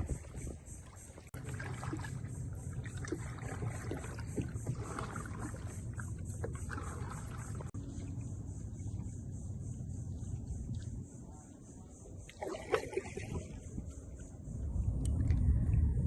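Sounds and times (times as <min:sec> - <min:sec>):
paddle splashes and drips: 0:00.0 - 0:09.1, 0:10.1 - 0:15.8
steady low background: 0:03.8 - 0:12.4.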